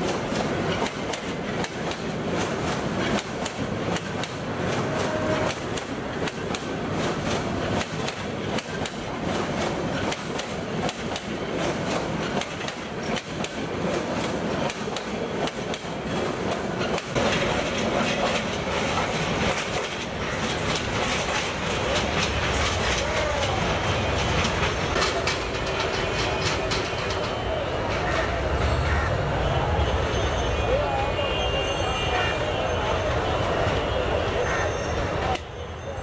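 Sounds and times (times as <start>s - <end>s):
wheels clicking over rail joints: 0.0s - 28.4s
train rumble: 0.0s - 36.0s.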